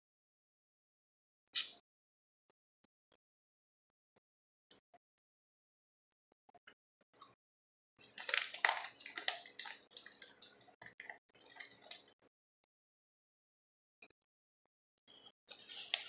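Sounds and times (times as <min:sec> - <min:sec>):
crunchy chewing: 0:15.5 - 0:16.0.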